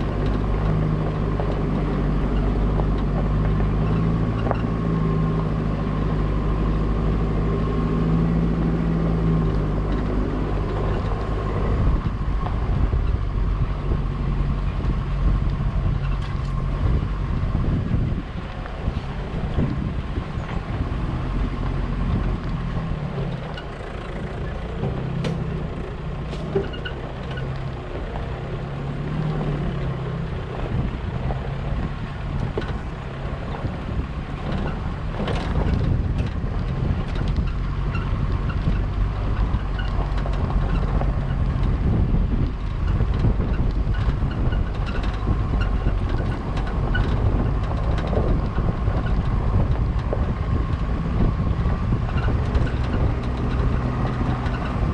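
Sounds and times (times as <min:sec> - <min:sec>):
road and wind noise: 0:00.0 - 0:54.9
vehicle engine running: 0:00.0 - 0:54.9
small rattles and clicks: 0:29.4 - 0:54.9.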